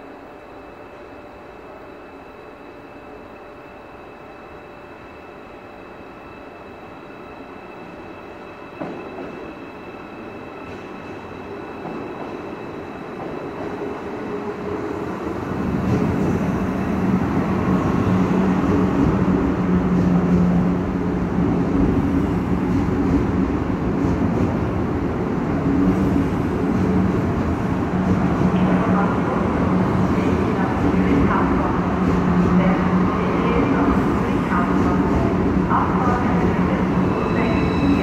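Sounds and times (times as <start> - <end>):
train rumbling past: 6.3 - 38.0.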